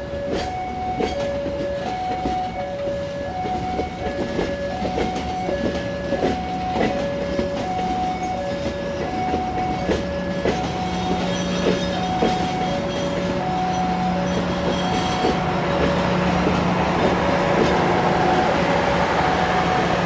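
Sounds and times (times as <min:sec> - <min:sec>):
train wheels clicking over joints: 0:00.0 - 0:20.0
two-tone electronic warning alarm: 0:00.0 - 0:20.0
low engine hum: 0:13.2 - 0:20.0.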